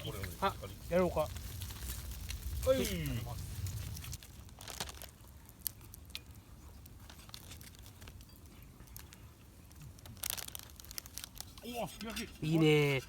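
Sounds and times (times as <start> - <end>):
plastic packaging crinkling: 0.0 - 12.1
plastic rustling: 0.0 - 13.0.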